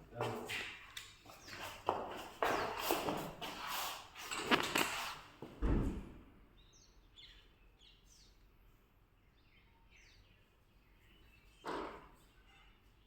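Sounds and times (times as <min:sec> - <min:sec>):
rustling and knocking: 0:04.3 - 0:05.6
low thump: 0:05.6 - 0:06.2
small bird chirping: 0:06.6 - 0:08.5.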